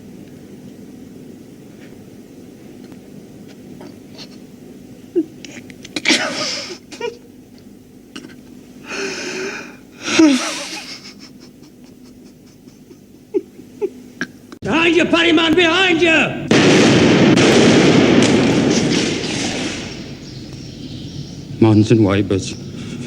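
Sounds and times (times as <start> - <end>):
man sobbing: 3.8 - 7.2, 8.1 - 14.1.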